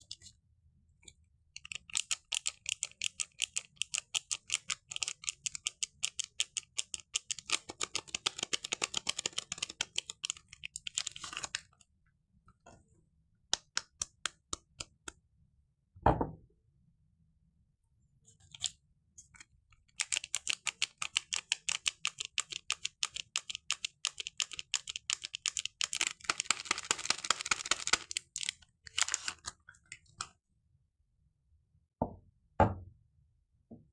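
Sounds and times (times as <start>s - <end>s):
wrapper crinkling: 25.9s - 29.5s.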